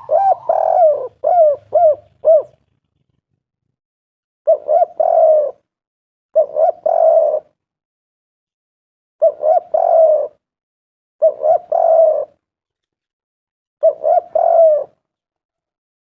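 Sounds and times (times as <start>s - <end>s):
dove cooing: 0.0s - 3.3s, 4.5s - 5.7s, 6.4s - 7.6s, 9.2s - 10.5s, 11.2s - 12.4s, 13.8s - 15.1s.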